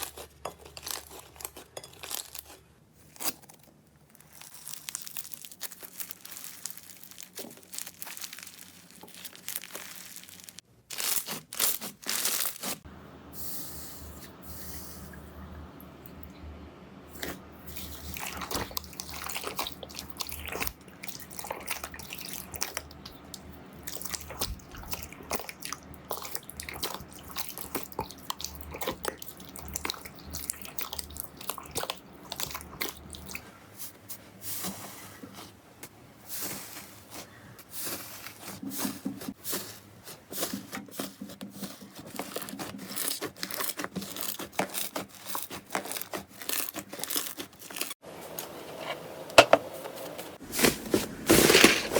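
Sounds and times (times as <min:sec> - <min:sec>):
wet slime squishes: 0:00.0 - 0:12.9, 0:17.1 - 0:35.6, 0:36.3 - 0:48.0
slime crackling and popping: 0:03.1 - 0:12.8, 0:42.4 - 0:48.0.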